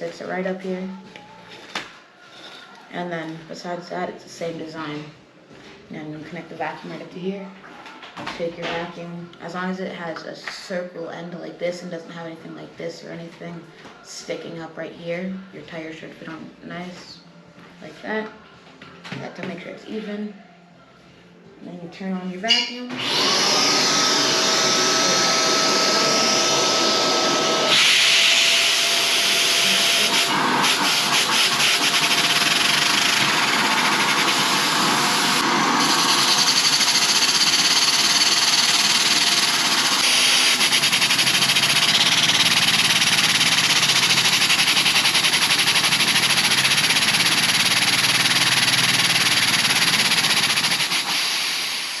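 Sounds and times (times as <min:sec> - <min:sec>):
vacuum cleaner motor whine: 0:22.9 - 0:52.0.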